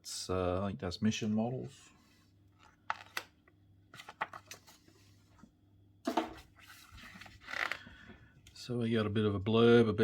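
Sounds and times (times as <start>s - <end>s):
paper rustling: 3.9s - 5.4s, 6.4s - 7.8s.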